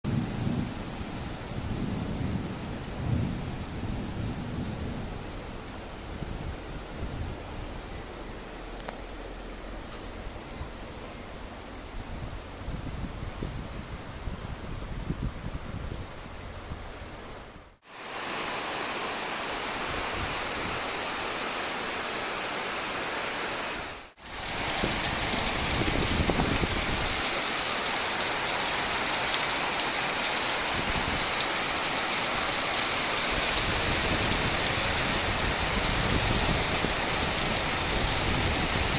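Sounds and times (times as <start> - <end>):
heavy rain pouring: 0.1 - 7.9, 17.8 - 38.9.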